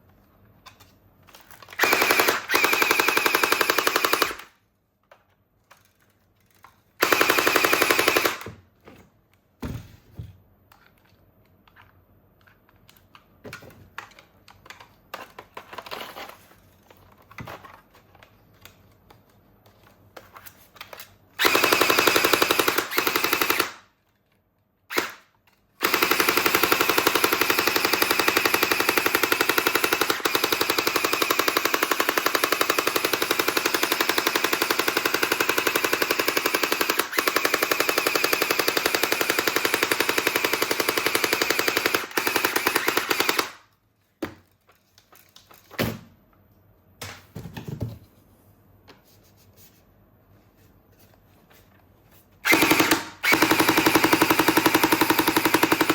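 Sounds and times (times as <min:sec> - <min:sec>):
toy gun machine-gun sound effect: 0:01.8 - 0:04.5, 0:07.0 - 0:08.5, 0:21.4 - 0:23.8, 0:25.8 - 0:43.6, 0:52.4 - 0:55.9.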